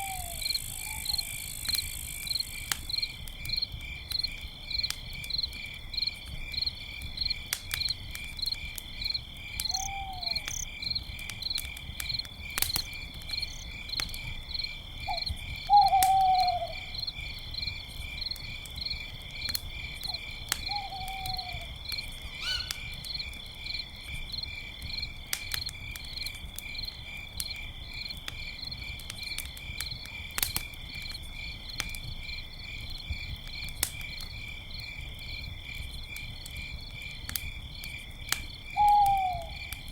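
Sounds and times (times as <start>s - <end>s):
owl hooting: 0.0s - 1.6s, 9.7s - 10.5s, 15.1s - 16.9s, 20.7s - 21.7s, 22.4s - 22.9s, 38.8s - 39.6s
campfire popping: 0.0s - 39.9s
crickets chirping: 0.0s - 39.9s.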